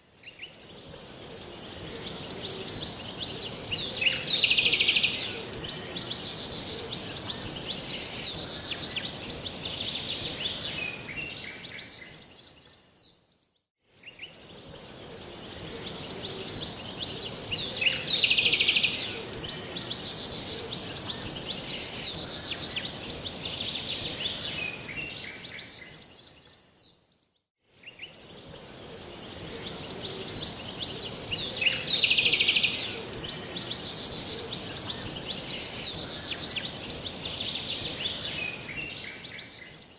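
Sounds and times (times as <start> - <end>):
steady high-pitched hiss: 0.0 - 12.4, 14.0 - 26.3, 27.8 - 39.9
birds singing and chirping: 27.9 - 39.9.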